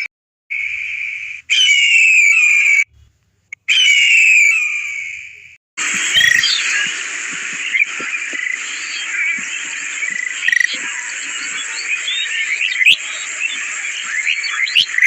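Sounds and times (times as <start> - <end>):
high-pitched bird calls: 0.0 - 2.9, 3.5 - 15.0
chorus of frogs and insects: 3.9 - 15.0.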